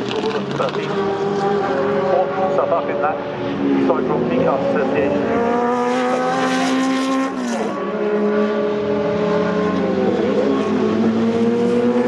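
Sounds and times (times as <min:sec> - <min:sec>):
race car engines at high revs: 0:00.0 - 0:12.0.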